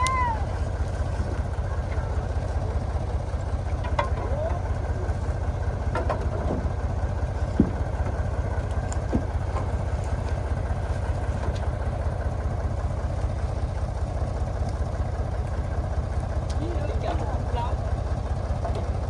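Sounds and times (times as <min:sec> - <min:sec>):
heavy truck engine idling: 0:00.0 - 0:19.0.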